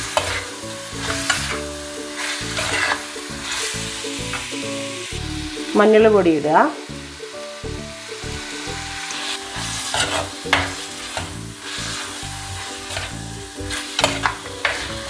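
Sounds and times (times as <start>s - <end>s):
chicken and onion sizzling in a pan: 0.0s - 15.0s
scraping rustles from mixing: 2.2s - 3.0s.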